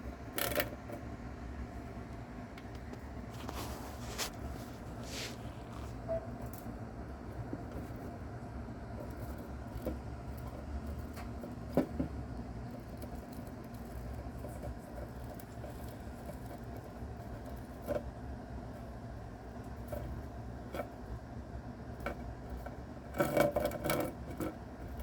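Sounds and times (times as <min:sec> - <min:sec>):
steady low hum: 0:00.0 - 0:25.0
mouse feeding clicks: 0:00.2 - 0:01.1.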